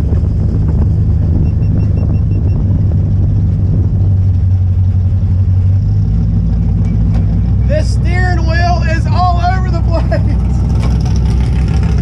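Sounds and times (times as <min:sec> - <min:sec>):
race car engine droning: 0:00.0 - 0:12.0
high beeps: 0:01.4 - 0:02.6.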